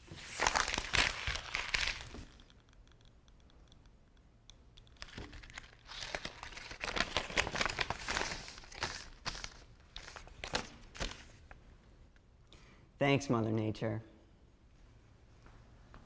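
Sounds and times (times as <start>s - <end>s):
paper crumpling and tearing: 0.0s - 2.4s, 5.0s - 11.4s.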